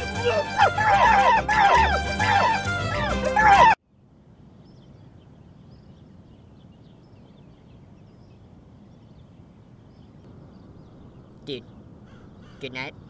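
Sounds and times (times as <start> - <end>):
small birds chirping: 3.4 - 13.0.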